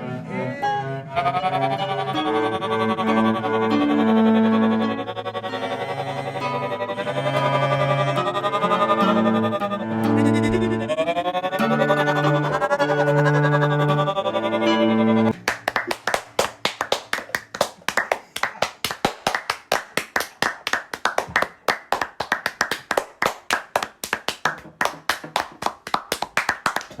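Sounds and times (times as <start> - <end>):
music track: 0.0 - 15.4
hands clapping: 15.3 - 27.0.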